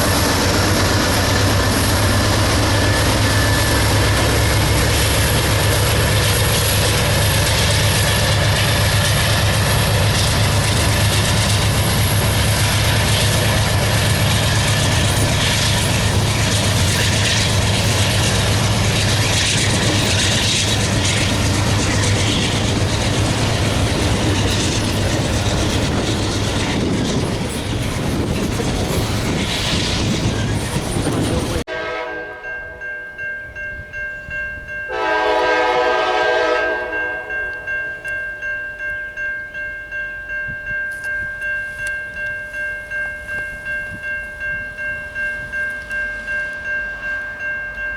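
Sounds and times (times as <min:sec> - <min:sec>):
diesel locomotive rumble: 0:00.0 - 0:32.1
steel wheels on rail: 0:00.0 - 0:47.9
locomotive air horn chord: 0:31.7 - 0:32.8, 0:34.9 - 0:37.7.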